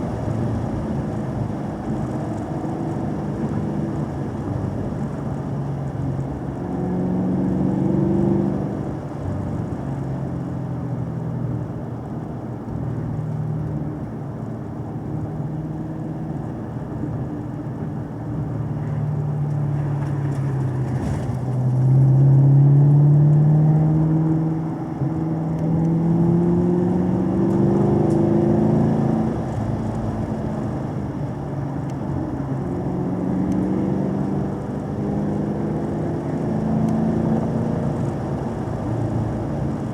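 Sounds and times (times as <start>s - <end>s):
car engine revving through gears: 19.6s - 39.9s.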